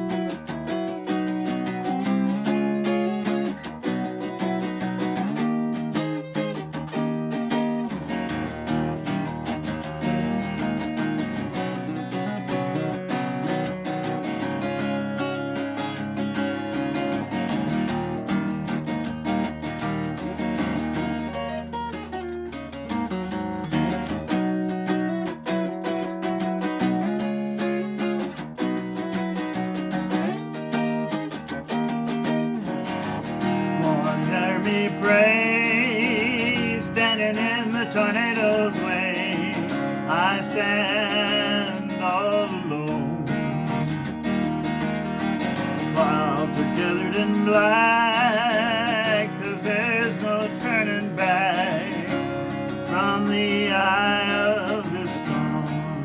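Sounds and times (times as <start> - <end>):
strummed acoustic guitar: 0.0 - 56.0.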